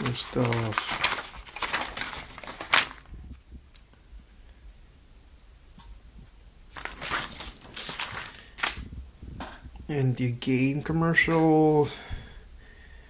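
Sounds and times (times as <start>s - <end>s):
paper packaging rustling: 0.0s - 3.2s, 6.7s - 8.9s.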